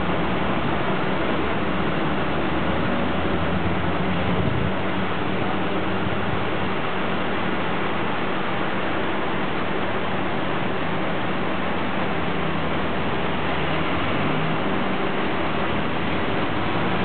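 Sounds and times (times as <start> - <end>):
cars idling: 11.4 - 17.0.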